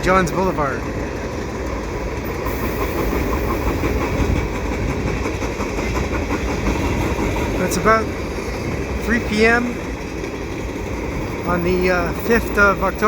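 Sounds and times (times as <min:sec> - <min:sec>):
faint rail clicking: 0:00.0 - 0:13.0
freight train wheels rumbling: 0:00.0 - 0:13.0.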